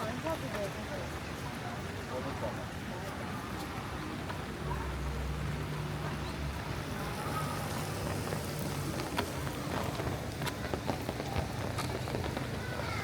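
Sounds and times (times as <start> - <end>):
steady rain hiss: 0.0 - 13.0
vehicle engine hum: 3.8 - 13.0.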